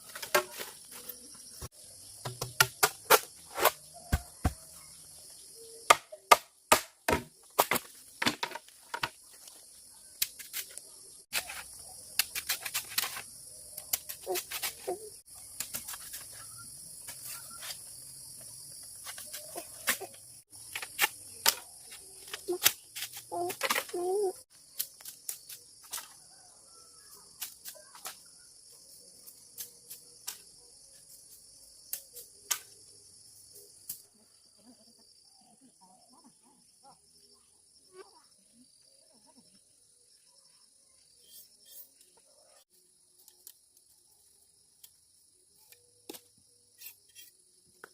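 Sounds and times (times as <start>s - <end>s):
wood being chopped: 2.2s - 4.7s, 5.9s - 9.2s.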